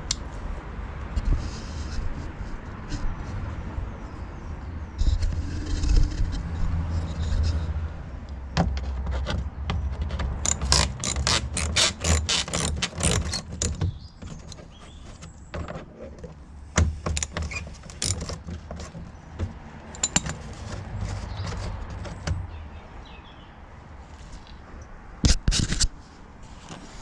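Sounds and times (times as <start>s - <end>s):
tool clatter: 8.5s - 22.5s
socket ratchet clicking: 10.1s - 14.8s, 16.9s - 19.0s, 19.9s - 20.5s.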